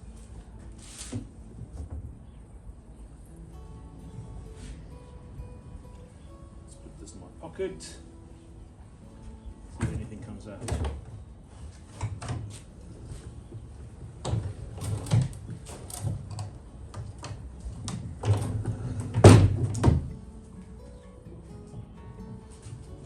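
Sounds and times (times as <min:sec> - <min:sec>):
background music: 0:00.0 - 0:11.4, 0:19.8 - 0:23.0
motor mechanical knocks and clatters: 0:14.1 - 0:20.2.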